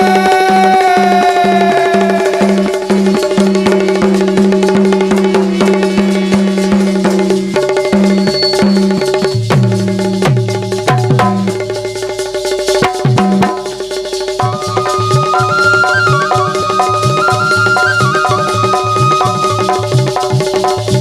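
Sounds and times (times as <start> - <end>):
steady held note: 0.0 - 9.4, 14.4 - 20.2
hand drums fast rhythm: 0.0 - 21.0
repeating pulsed note: 0.9 - 10.0, 14.4 - 20.4
deep drum strokes: 1.0 - 21.0.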